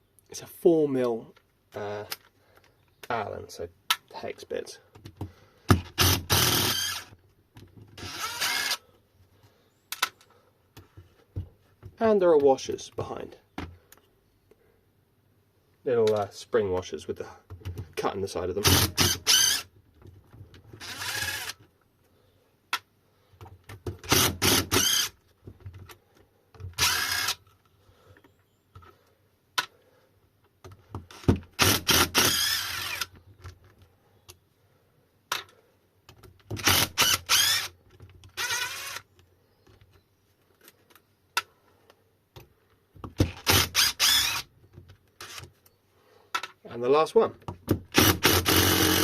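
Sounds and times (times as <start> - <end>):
electric drill-driver running: 6.0 - 7.1, 8.0 - 8.8, 20.8 - 21.6, 24.1 - 25.1, 26.8 - 27.4, 31.1 - 33.1, 36.6 - 37.7, 38.4 - 39.0, 43.4 - 44.4, 47.9 - 49.0.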